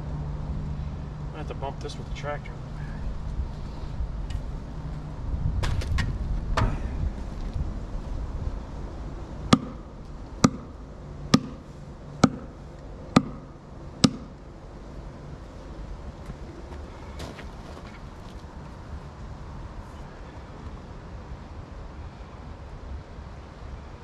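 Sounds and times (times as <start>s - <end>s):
tractor engine running: 0.0s - 19.0s
sharp knocks: 9.5s - 11.6s, 12.2s - 14.4s.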